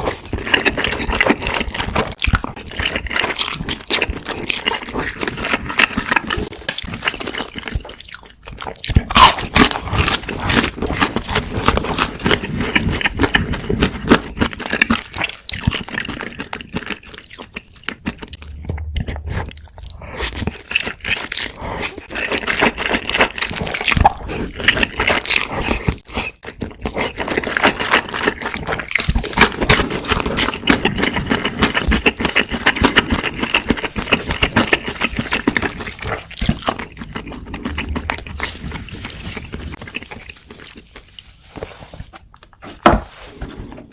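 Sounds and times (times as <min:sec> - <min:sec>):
chewing with wet mouth clicks: 0:00.1 - 0:41.4.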